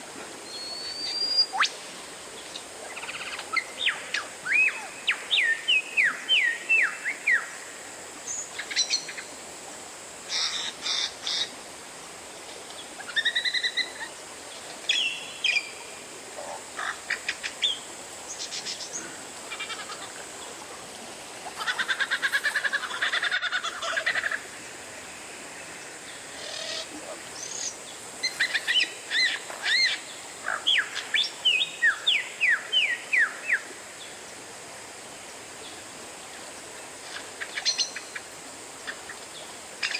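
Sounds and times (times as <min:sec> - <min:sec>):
songbird singing whistled notes: 0:00.5 - 0:01.7.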